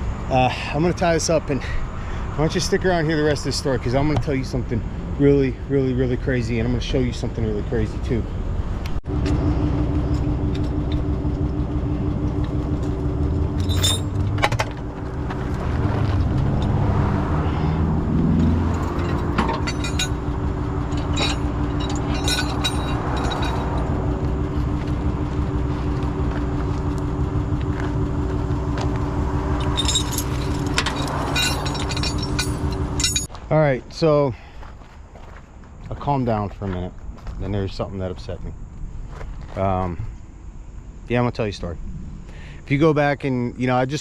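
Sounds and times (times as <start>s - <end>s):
tow truck engine running: 0.0s - 33.4s
metal clinks and rattles: 12.4s - 14.9s, 18.6s - 25.0s, 29.2s - 33.3s.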